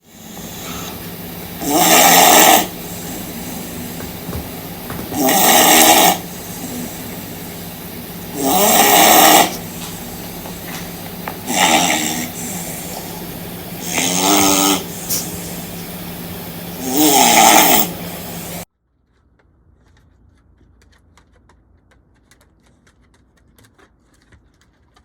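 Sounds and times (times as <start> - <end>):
dog snoring: 0.0 - 18.6
steady low hum: 0.0 - 18.7.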